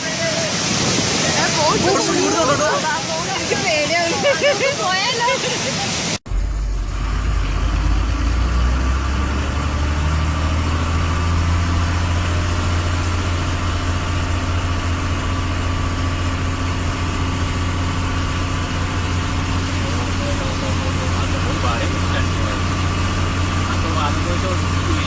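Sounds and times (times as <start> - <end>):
engine idling: 5.9 - 25.0.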